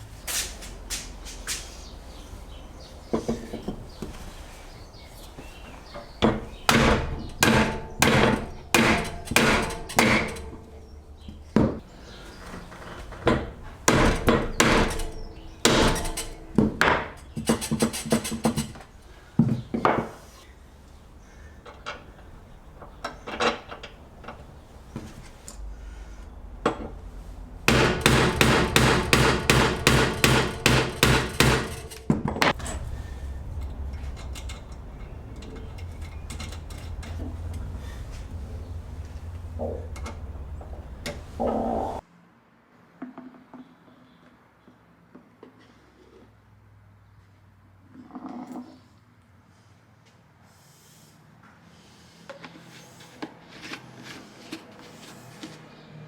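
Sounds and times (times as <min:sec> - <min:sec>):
hammer blows on metal: 0:27.7 - 0:41.4.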